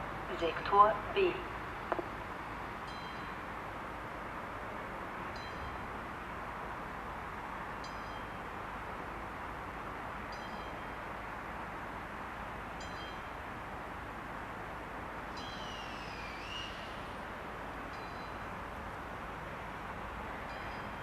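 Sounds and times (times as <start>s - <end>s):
train wheels squealing: 15.4s - 17.0s, 20.5s - 21.0s.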